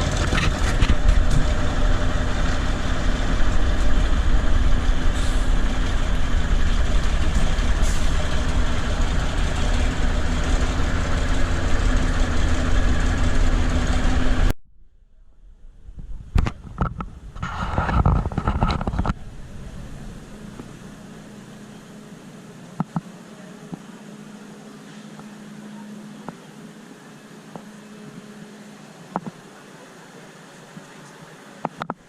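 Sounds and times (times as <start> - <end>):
large truck engine idling: 0.0 - 14.5, 19.1 - 31.7.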